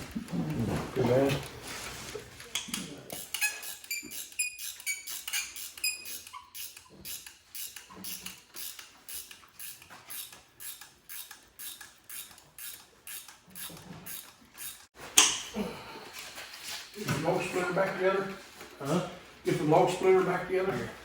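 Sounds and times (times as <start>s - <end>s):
small metal parts clinking: 2.6s - 14.9s.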